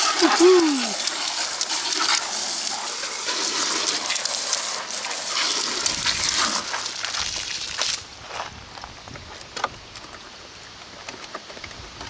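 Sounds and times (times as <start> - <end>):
garden hose spraying water: 0.0 - 8.2.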